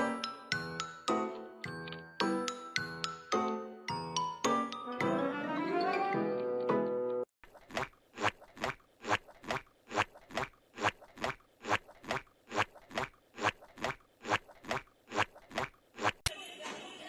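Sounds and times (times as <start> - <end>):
crunchy chewing: 7.5 - 16.2.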